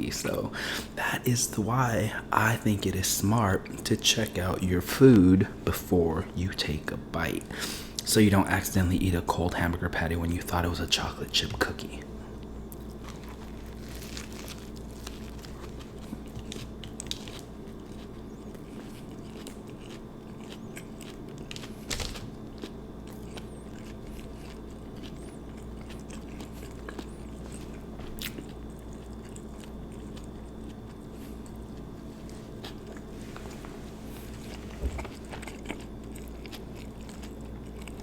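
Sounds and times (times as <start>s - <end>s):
steady low hum: 0.0s - 38.0s
close-miked chewing: 11.3s - 38.0s.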